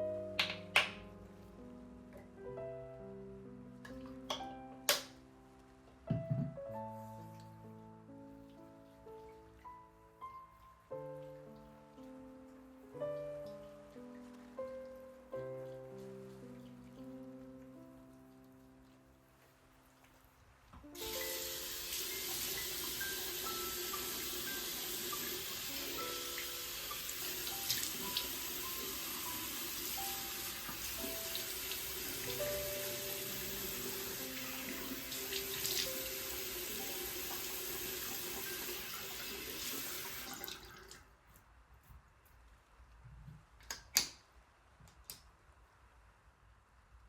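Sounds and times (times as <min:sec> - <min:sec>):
tap water running into sink: 0:20.9 - 0:41.0.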